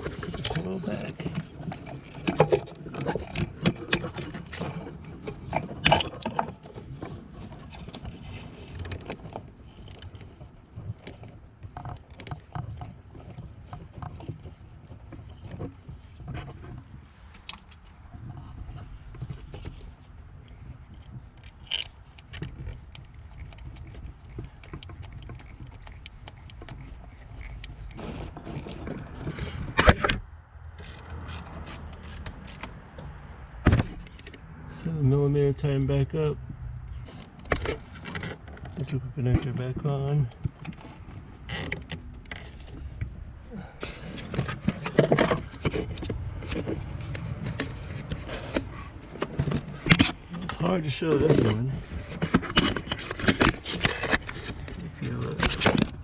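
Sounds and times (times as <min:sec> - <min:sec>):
metal tools clicking and knocking: 0:30.8 - 0:32.8.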